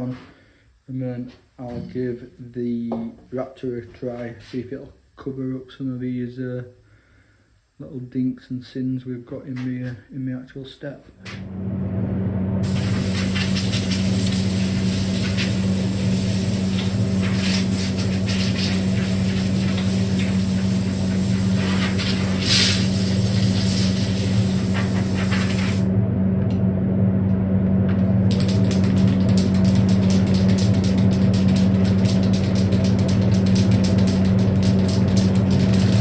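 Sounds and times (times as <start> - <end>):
low machine hum: 11.1 - 36.0
spray can hissing: 12.6 - 25.9, 28.2 - 36.0.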